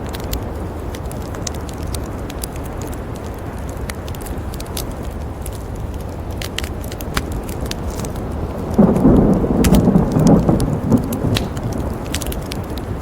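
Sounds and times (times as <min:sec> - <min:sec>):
campfire crackling: 0:00.0 - 0:13.0
thunder rumble: 0:07.3 - 0:13.0.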